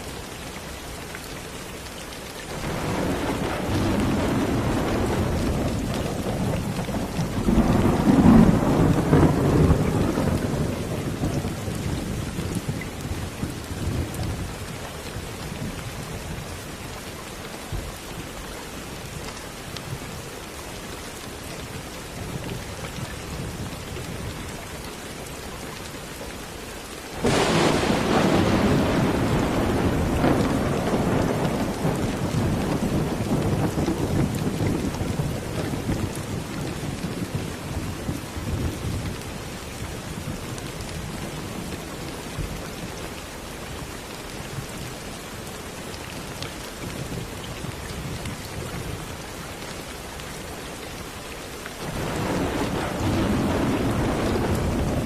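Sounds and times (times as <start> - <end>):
steady rain: 0.0 - 55.0
sharp thunderclap: 2.6 - 11.8, 27.2 - 39.0, 51.8 - 55.0
rolling thunder: 2.6 - 14.6, 27.2 - 39.2, 51.8 - 55.0.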